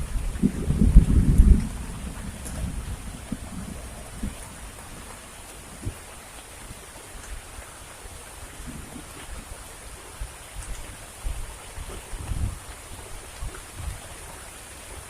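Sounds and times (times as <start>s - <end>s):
low thuds: 0.0s - 6.0s
heavy rain falling: 0.0s - 15.0s.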